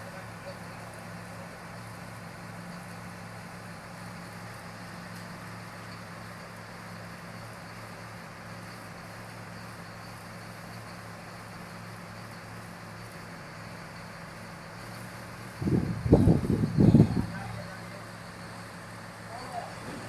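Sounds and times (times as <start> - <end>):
drilling rig engine humming: 12.5 - 20.0.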